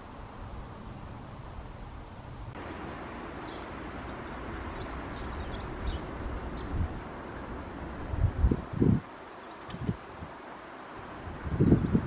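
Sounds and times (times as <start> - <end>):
background hiss: 0.0 - 12.0
bird calling: 2.6 - 8.6.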